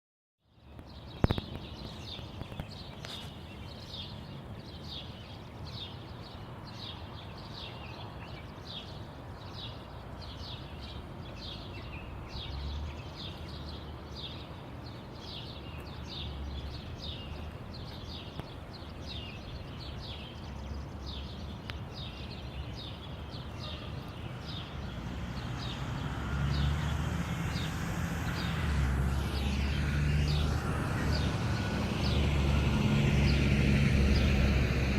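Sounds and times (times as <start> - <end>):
bird chirping: 0.5 - 34.9
vehicle passing: 23.9 - 34.9.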